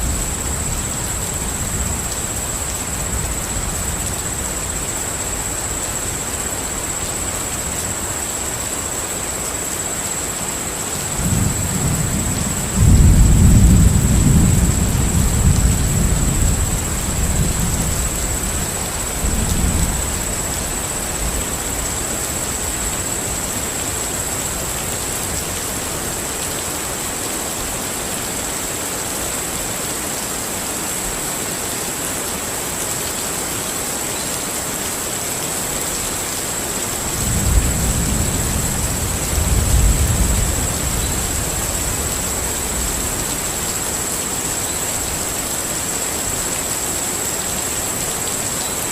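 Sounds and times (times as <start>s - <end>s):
steady rain hiss: 0.0s - 48.9s
rolling thunder: 11.2s - 22.0s, 37.2s - 43.0s.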